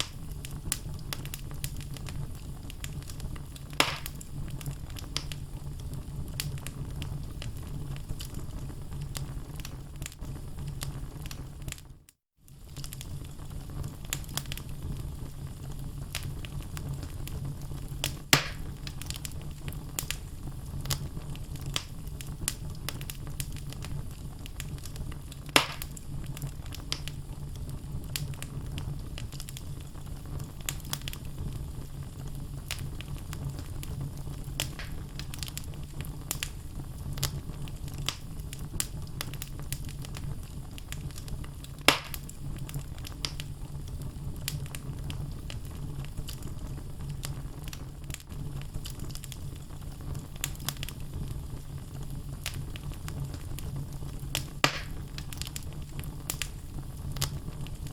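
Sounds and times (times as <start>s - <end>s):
sharp pops of burning logs: 0.0s - 5.4s, 18.0s - 27.2s, 32.7s - 43.5s, 52.3s - 57.9s
logs crackling: 0.0s - 11.8s, 15.6s - 31.6s, 32.2s - 49.6s, 54.1s - 57.9s
fire rumbling in fireplace: 0.0s - 57.9s.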